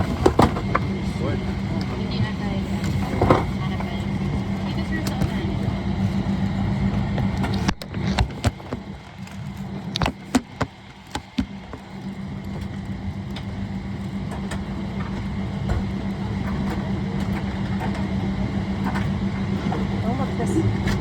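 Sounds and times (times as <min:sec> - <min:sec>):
aircraft cabin hum: 0:00.0 - 0:21.0.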